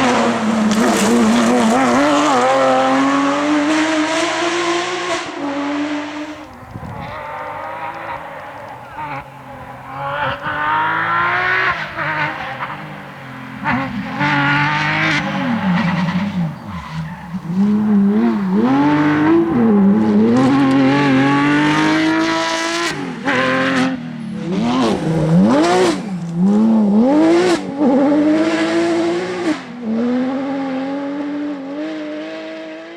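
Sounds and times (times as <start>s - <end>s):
rally car engine revving: 0.0s - 32.9s
tyre squeal: 15.0s - 20.5s.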